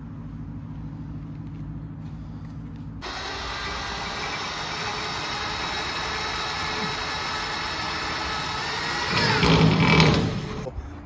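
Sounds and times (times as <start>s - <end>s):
low engine hum: 0.0s - 11.0s
mechanical whir: 3.0s - 10.8s.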